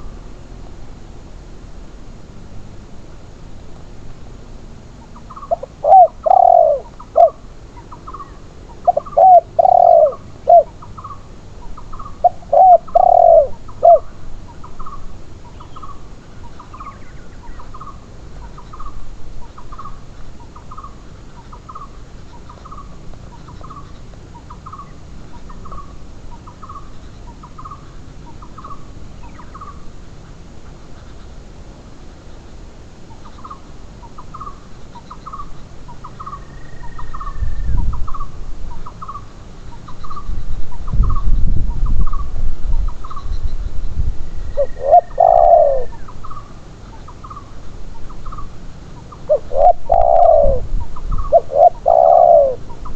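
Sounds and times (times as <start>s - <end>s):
doves cooing: 5.0s - 31.4s, 44.4s - 52.9s.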